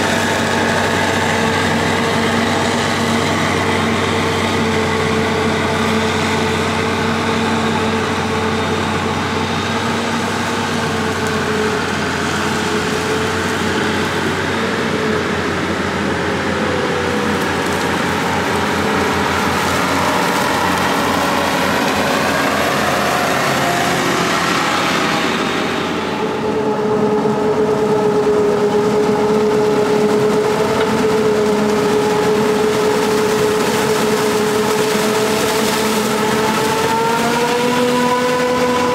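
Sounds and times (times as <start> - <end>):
diesel farm machinery running: 0.0 - 38.9
steady machine whine: 0.0 - 38.9.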